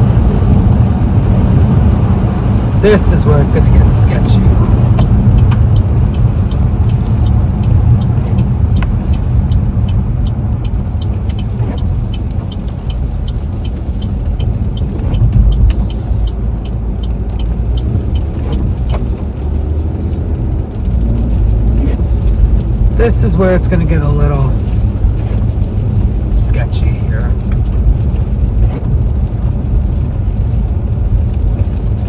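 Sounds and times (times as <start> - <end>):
tyres and engine rumble: 0.0 - 32.0
fast regular ticking: 0.1 - 32.0.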